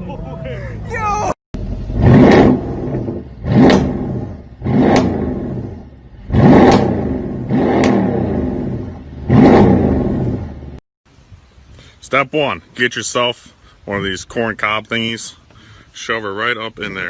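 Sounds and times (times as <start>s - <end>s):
car engine revving: 1.6s - 10.8s.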